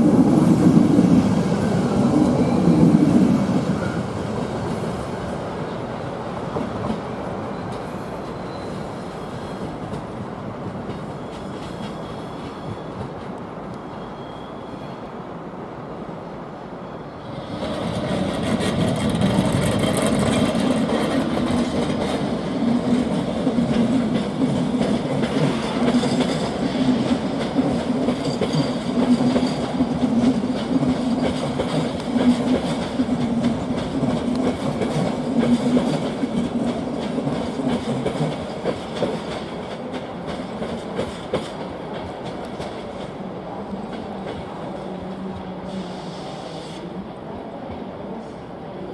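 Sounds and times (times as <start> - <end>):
low train hum: 0.0 - 48.9
train wheels clattering over rail joints: 17.6 - 43.2.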